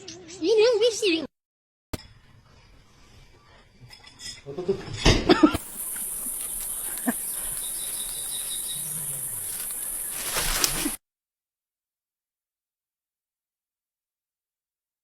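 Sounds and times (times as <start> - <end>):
high-pitched hiss: 5.6 - 11.0.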